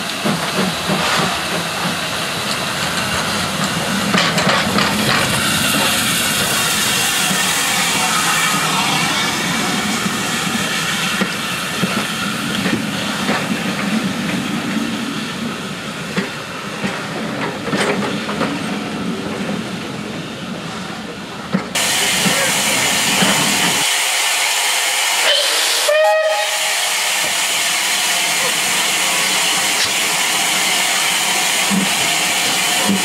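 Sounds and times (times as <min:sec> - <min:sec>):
train wheels clicking over rail joints: 0:00.0 - 0:07.9, 0:09.3 - 0:14.9, 0:16.0 - 0:19.6, 0:21.4 - 0:23.9, 0:27.2 - 0:33.0
steam hissing: 0:00.0 - 0:16.6, 0:21.8 - 0:33.0.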